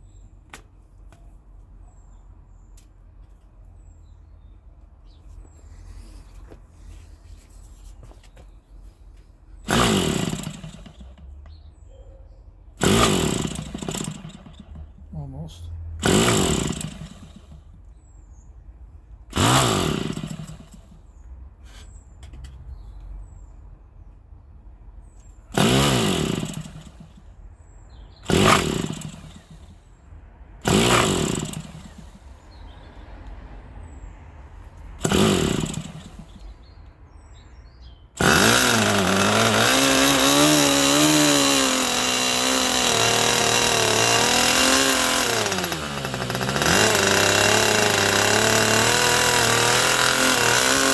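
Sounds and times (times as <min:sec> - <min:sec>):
electric starter whirring: 0:09.6 - 0:11.4, 0:12.8 - 0:15.4, 0:16.0 - 0:17.7, 0:19.3 - 0:21.0, 0:25.5 - 0:27.2, 0:28.2 - 0:30.0, 0:30.6 - 0:32.4, 0:35.0 - 0:36.6, 0:38.2 - 0:50.9
model engine running high-pitched: 0:38.2 - 0:50.9.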